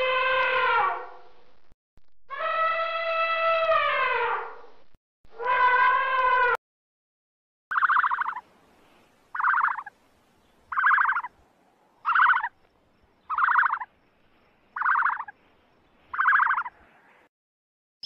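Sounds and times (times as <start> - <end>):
emu rattling call: 7.7 - 8.4, 9.3 - 9.9, 10.7 - 11.3, 12.0 - 12.6, 13.3 - 13.9, 14.8 - 15.3, 16.1 - 16.7.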